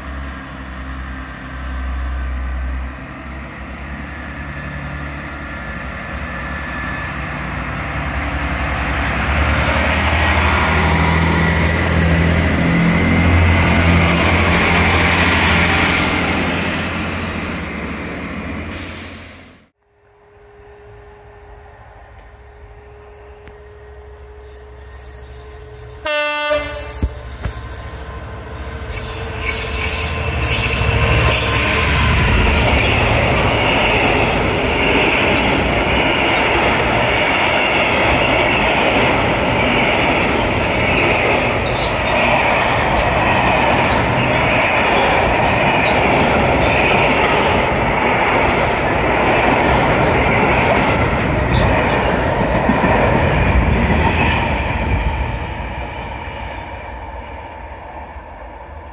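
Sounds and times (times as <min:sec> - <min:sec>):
train wheel-on-rail noise: 0:00.0 - 0:58.9
train horn blast: 0:26.0 - 0:27.3.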